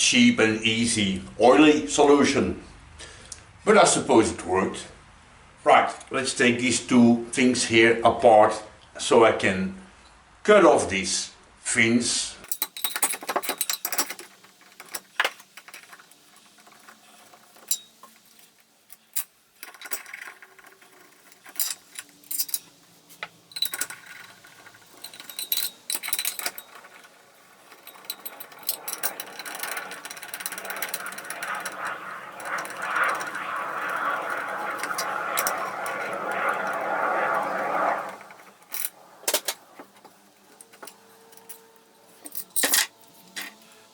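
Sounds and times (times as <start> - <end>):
metal tools clicking and clanking: 12.5 - 37.3, 38.6 - 43.6
steady whirring noise: 12.5 - 43.9.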